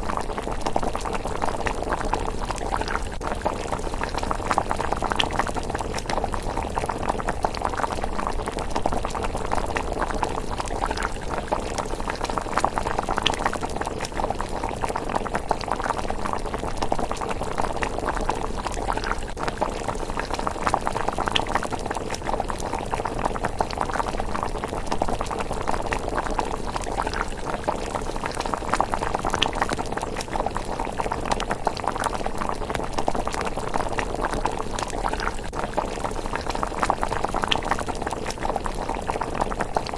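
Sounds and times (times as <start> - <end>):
porridge bubbling in a pot: 0.0 - 39.9.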